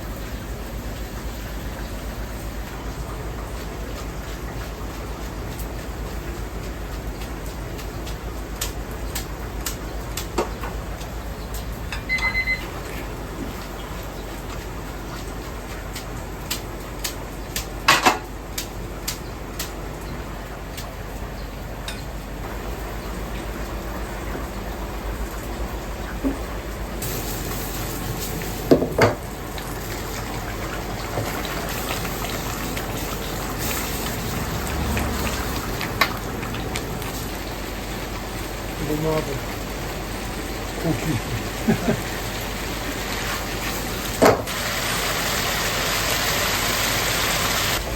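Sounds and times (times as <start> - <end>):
short electronic beep: 12.0 - 12.6
water running from a tap: 22.6 - 47.9.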